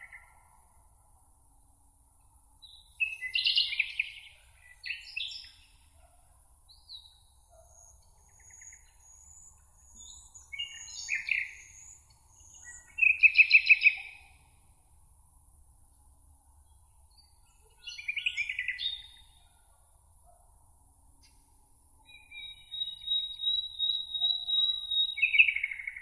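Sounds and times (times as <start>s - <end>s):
songbirds singing: 2.6s - 6.1s, 6.7s - 14.6s, 16.6s - 19.7s, 22.0s - 26.0s.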